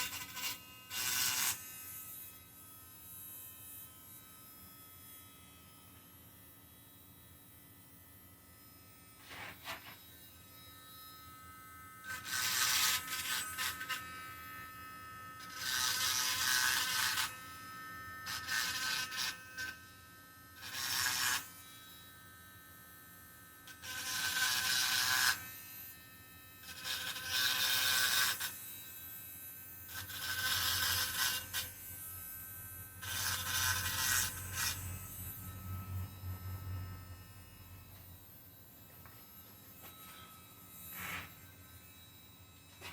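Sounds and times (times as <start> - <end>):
rotary tool grinding metal: 0.0 - 3.8, 8.6 - 22.4, 23.6 - 42.9.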